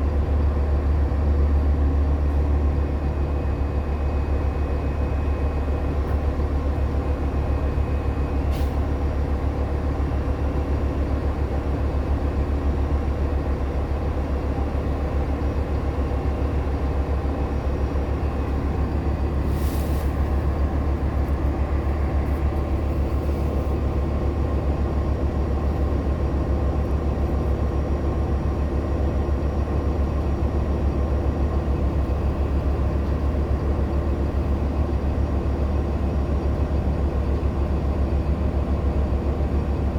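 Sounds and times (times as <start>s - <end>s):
bus engine drone: 0.0s - 39.9s
short hiss: 19.5s - 20.1s.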